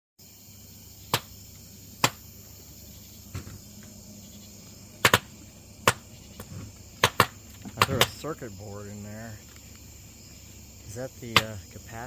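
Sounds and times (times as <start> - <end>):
sharp pops from burning circuit board: 1.1 - 1.4, 2.0 - 2.3, 5.0 - 8.2, 11.3 - 11.6.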